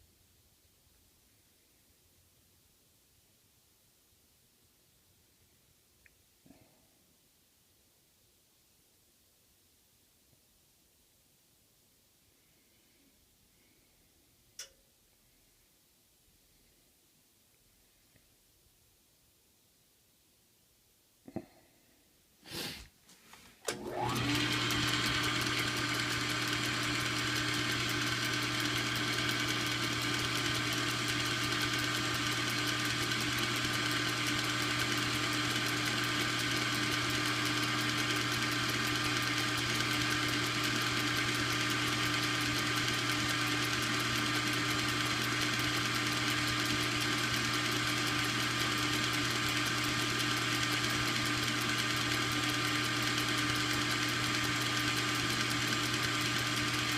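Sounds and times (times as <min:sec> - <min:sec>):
clicks: 0:14.6 - 0:14.8
electric motor humming: 0:23.7 - 0:56.9.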